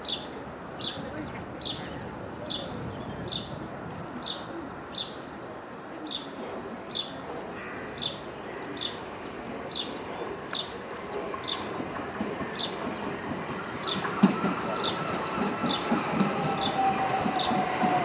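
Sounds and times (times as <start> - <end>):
train rumbling: 0.1 - 18.0.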